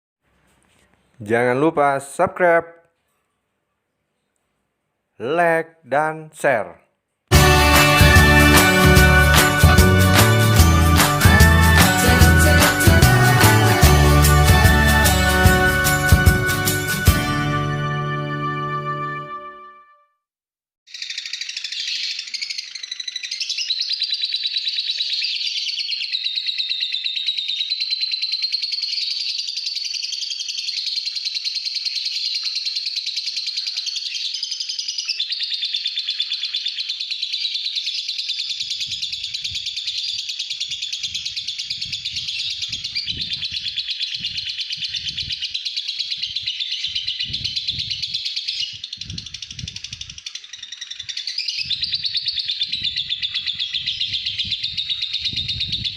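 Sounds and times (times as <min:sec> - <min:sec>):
lovebird chattering song: 0:20.9 - 0:55.9.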